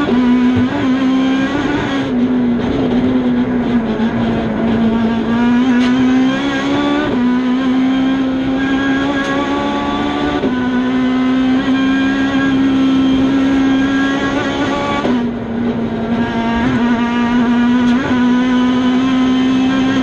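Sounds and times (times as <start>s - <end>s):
rally car engine at high revs: 0.0s - 20.0s.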